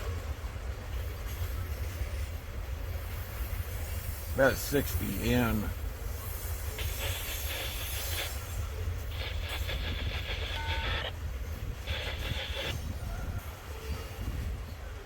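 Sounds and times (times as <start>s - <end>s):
train cars rolling past: 0.0s - 15.0s
rhythmic wheel clatter: 1.2s - 13.0s.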